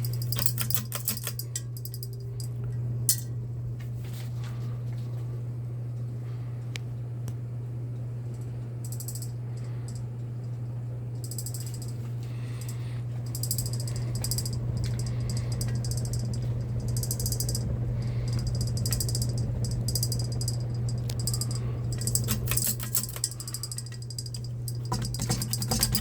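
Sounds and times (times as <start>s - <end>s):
sharp clicks: 0.0s - 2.0s, 18.3s - 26.0s
high buzzing rattle: 0.0s - 3.3s, 8.2s - 26.0s
ceiling fan motor hum: 0.0s - 26.0s.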